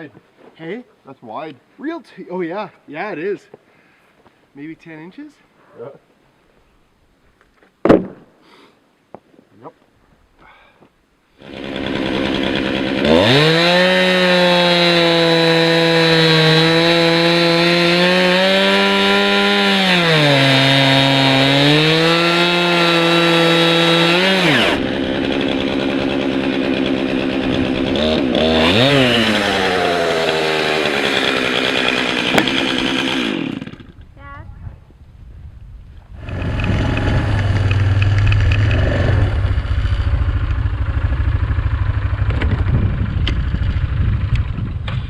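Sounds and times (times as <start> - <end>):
chainsaw revving and idling: 11.4 - 34.0, 36.2 - 42.7.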